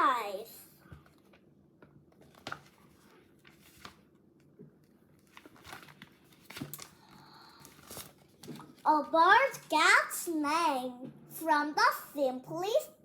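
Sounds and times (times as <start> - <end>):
paper page rustling: 2.1 - 4.2, 4.8 - 9.7.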